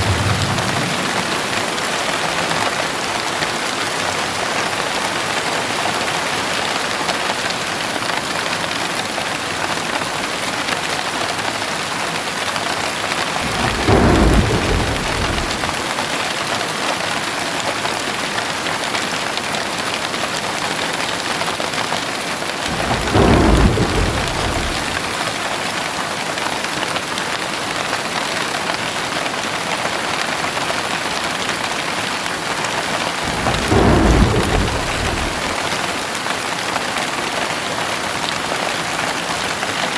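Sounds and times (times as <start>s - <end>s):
low rumbles of thunder: 0.0s - 2.7s, 13.3s - 15.9s, 22.6s - 25.2s, 33.1s - 36.0s
heavy rain pouring: 0.0s - 3.3s, 13.1s - 16.3s, 22.5s - 25.5s, 32.3s - 36.6s.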